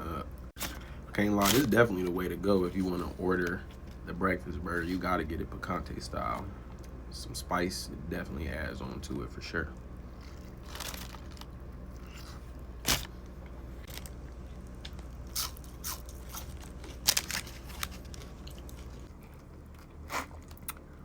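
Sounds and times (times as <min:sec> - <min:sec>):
person chewing food: 0:13.8 - 0:21.0.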